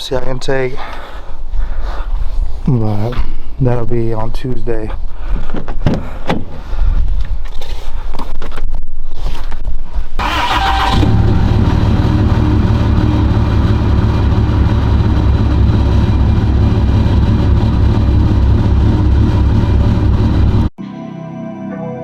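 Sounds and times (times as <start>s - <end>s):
engine idling with low pulsing: 10.4s - 20.7s.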